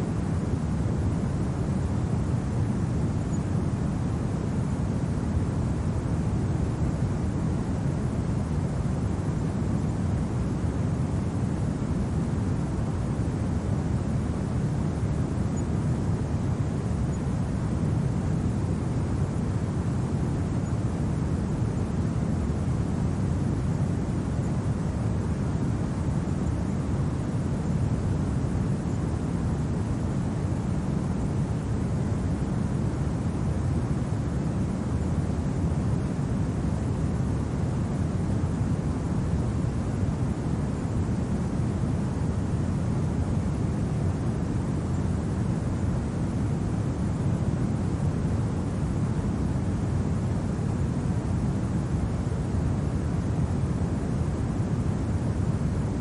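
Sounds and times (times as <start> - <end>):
rumbling winter wind: 0.0 - 56.0.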